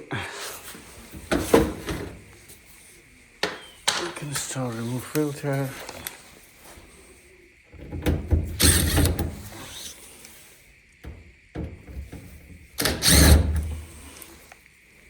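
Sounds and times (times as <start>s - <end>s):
plastic filter scraping and rattling: 1.1s - 2.3s, 7.7s - 10.0s, 11.1s - 14.2s.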